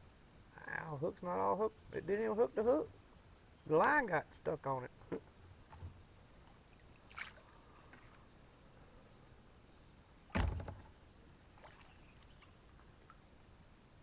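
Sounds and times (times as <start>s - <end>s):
insects chirring: 0.0s - 14.0s
sharp thump: 10.3s - 11.0s.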